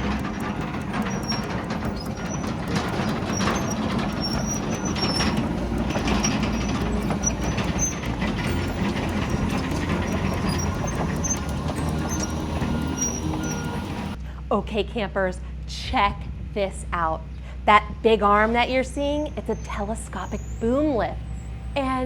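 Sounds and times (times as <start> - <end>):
diesel engine running: 0.0 - 14.2
high squeaks: 0.0 - 14.2
steel tracks clattering: 0.0 - 14.2.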